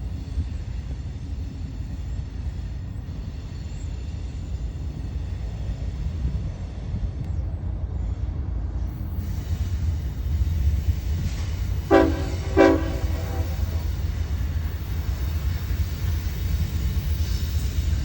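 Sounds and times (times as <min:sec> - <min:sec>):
diesel locomotives rumbling: 0:00.0 - 0:18.0
locomotive air horn blasts: 0:11.8 - 0:14.0.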